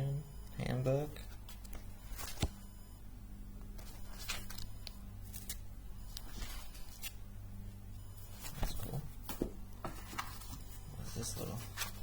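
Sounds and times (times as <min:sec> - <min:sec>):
steady low hum: 0:00.0 - 0:12.0
paper pages rustling: 0:03.8 - 0:04.7, 0:09.9 - 0:12.0.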